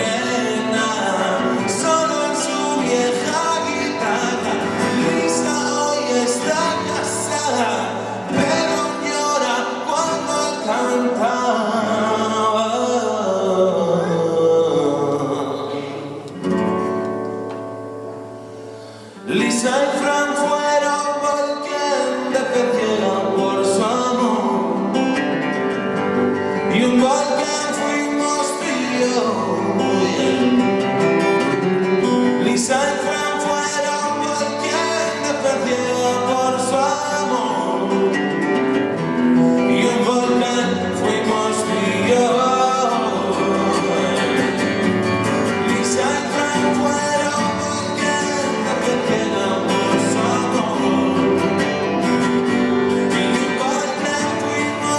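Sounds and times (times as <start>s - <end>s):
pop-rock band playing: 0.0s - 11.2s
person singing: 0.0s - 16.4s, 26.4s - 54.9s.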